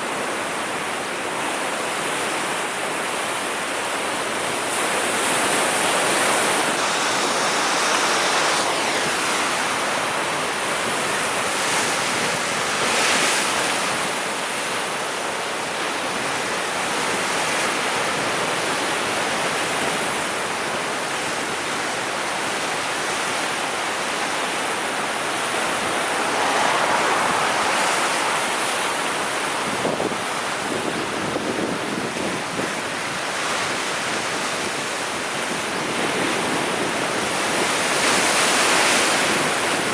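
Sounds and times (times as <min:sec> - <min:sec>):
sea waves breaking: 0:04.2 - 0:18.8, 0:23.2 - 0:34.8.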